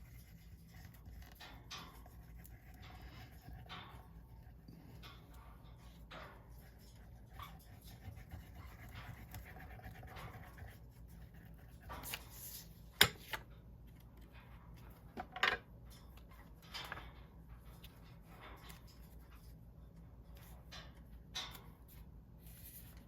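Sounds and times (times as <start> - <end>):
paper rustling and scraping: 11.6 - 12.8, 22.4 - 23.0.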